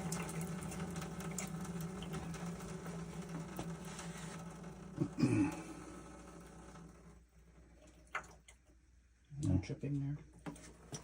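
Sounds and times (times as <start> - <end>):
tap water running into sink: 0.0 - 8.6.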